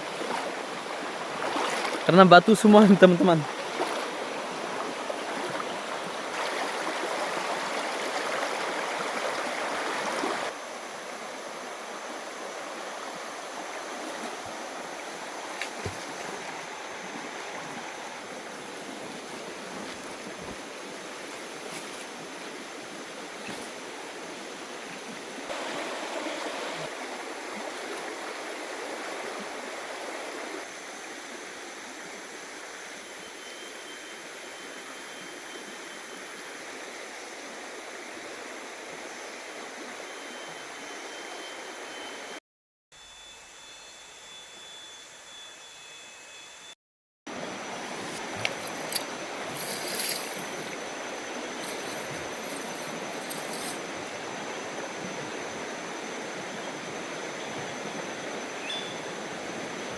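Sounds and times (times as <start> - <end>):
river water rushing: 0.0 - 33.1, 47.3 - 59.9.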